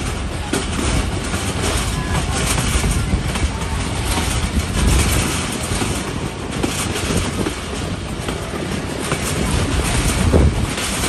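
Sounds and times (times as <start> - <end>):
train wheels rumbling and rattling: 0.0 - 11.0.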